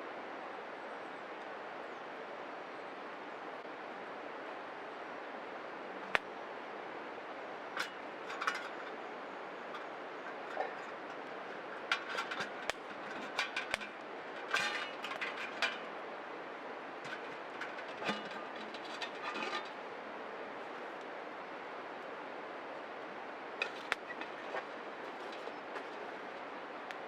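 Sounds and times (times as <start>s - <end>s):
wood fire crackling: 9.8s - 16.1s.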